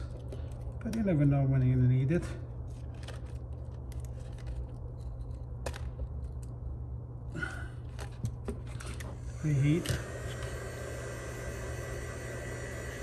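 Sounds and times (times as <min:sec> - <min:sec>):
steady low hum: 0:00.0 - 0:13.0
repair tool clicking and scraping: 0:08.0 - 0:13.0.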